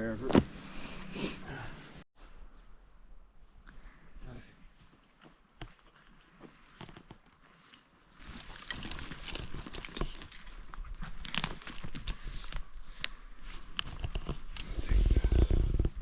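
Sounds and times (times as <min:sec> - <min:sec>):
rustling: 0:04.8 - 0:15.9
metal hardware clinking: 0:08.2 - 0:12.7.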